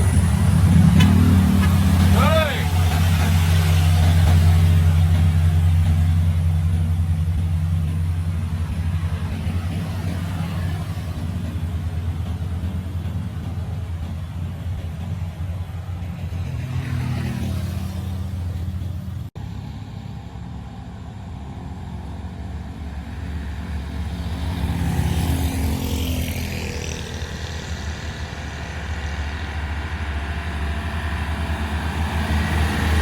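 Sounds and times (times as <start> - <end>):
low engine rumble of traffic: 0.0 - 33.0
vehicle passing close: 22.4 - 33.0.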